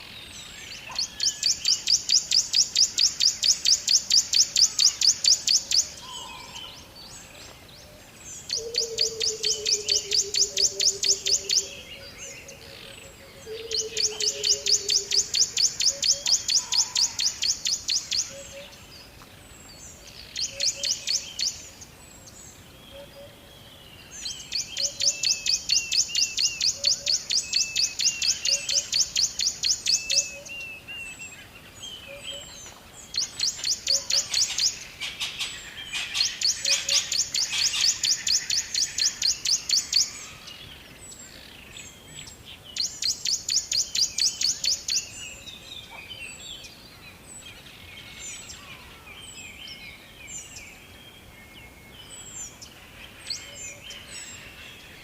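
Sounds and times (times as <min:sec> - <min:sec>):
faint bird chirps: 0:00.0 - 0:19.1
songbird high trill: 0:13.5 - 0:18.8, 0:32.2 - 0:40.6.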